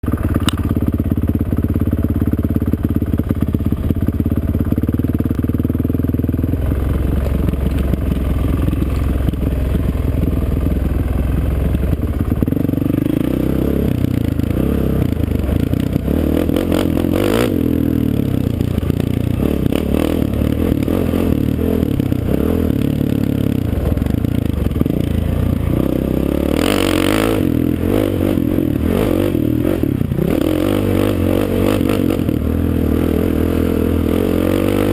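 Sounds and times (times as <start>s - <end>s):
off-road racing engine revving: 12.4s - 24.0s, 24.6s - 34.9s.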